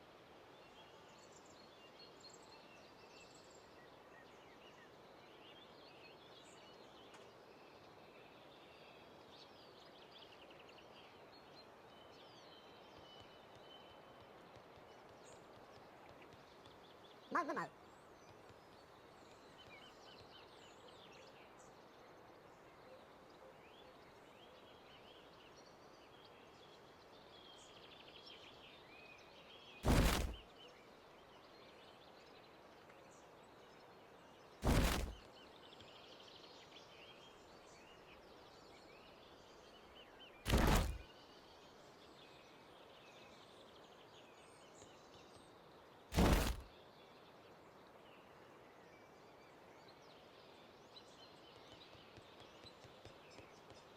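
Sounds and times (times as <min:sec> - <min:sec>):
loud short thumps: 0:29.8 - 0:30.4, 0:34.6 - 0:35.2, 0:40.5 - 0:41.0, 0:46.2 - 0:46.6.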